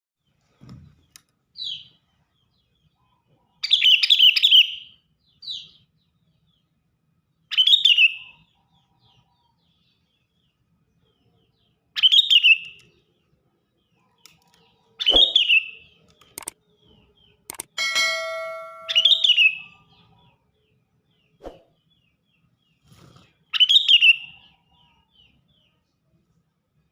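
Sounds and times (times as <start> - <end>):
bulbul chirping: 15.0 - 16.6, 17.5 - 19.7
brief ringing tone: 17.8 - 19.6.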